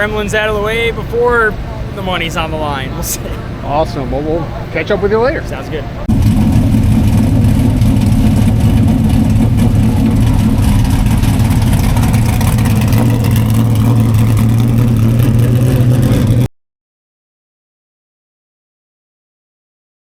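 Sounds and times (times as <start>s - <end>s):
race car engine running: 5.8s - 16.5s.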